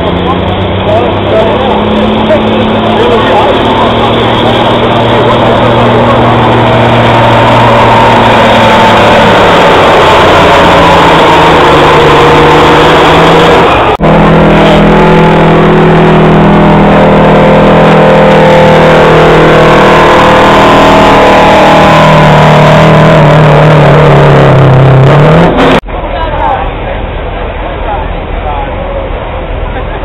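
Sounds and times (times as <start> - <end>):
diesel truck engine under load: 0.0 - 30.0.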